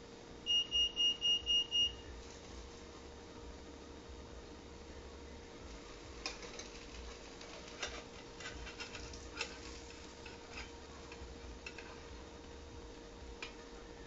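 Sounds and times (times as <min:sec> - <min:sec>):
faint steady hum: 0:00.0 - 0:14.0
crepe clicking in a pan: 0:05.7 - 0:12.6, 0:13.3 - 0:13.6.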